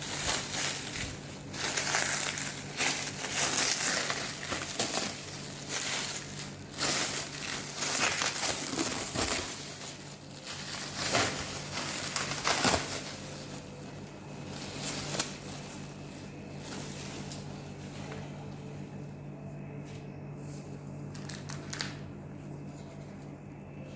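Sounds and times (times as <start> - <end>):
packaging crinkling: 0.0 - 18.0, 21.1 - 22.1
faint low hum: 0.0 - 23.9.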